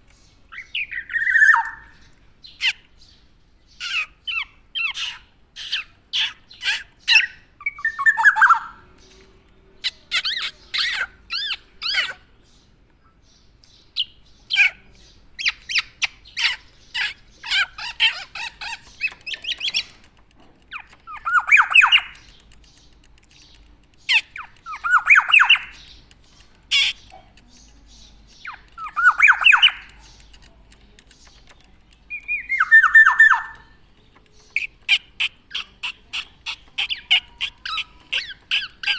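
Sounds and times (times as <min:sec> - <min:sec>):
oriole calling: 0:00.5 - 0:02.0, 0:32.1 - 0:33.7.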